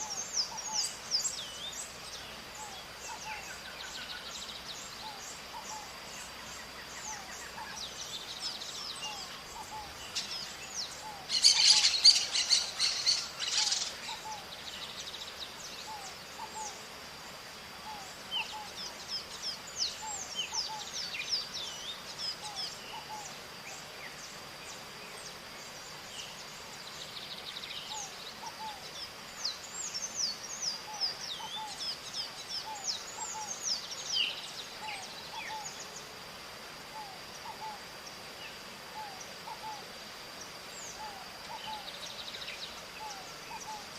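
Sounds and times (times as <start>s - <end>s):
parrots calling: 11.0s - 14.4s.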